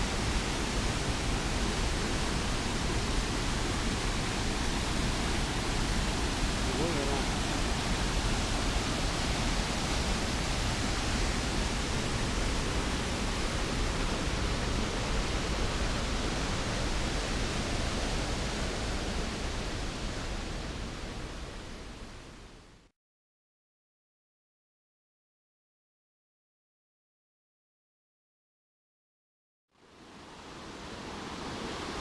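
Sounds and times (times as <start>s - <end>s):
waterfall rushing: 0.0s - 21.6s, 30.0s - 32.0s.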